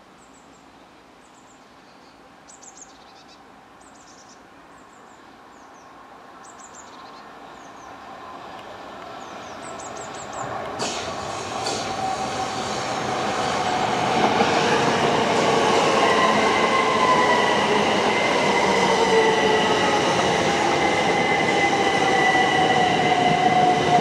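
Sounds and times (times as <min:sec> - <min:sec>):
small birds chirping: 0:00.2 - 0:08.1, 0:09.0 - 0:10.6
train approaching rolling noise: 0:07.2 - 0:24.0.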